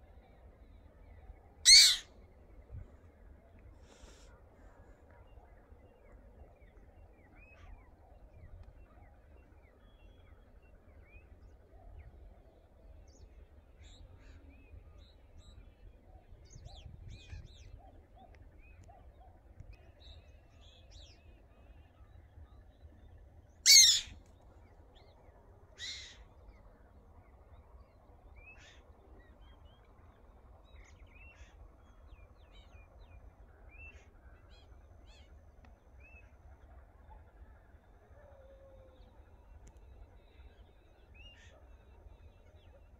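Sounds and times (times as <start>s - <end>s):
faint bird chirps: 0.0s - 23.1s, 23.7s - 24.2s
loud harsh bird call: 1.7s - 2.1s, 23.7s - 24.2s.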